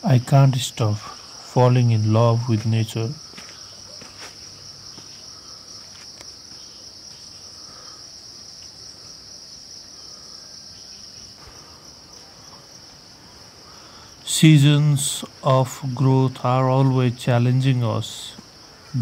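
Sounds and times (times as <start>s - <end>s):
insect chorus droning: 0.0s - 19.0s.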